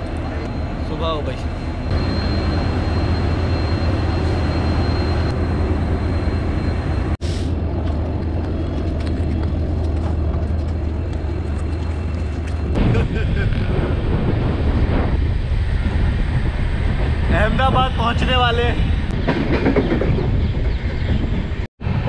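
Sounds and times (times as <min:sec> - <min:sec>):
train running rumble: 0:00.0 - 0:22.0.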